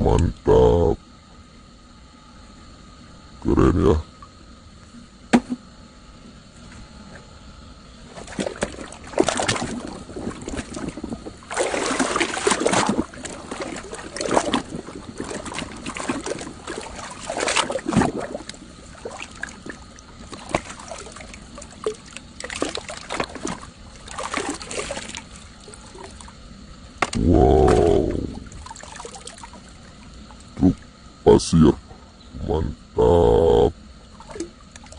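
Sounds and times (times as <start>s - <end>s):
water splashing and trickling: 8.1s - 26.4s, 27.7s - 31.0s, 34.1s - 34.9s.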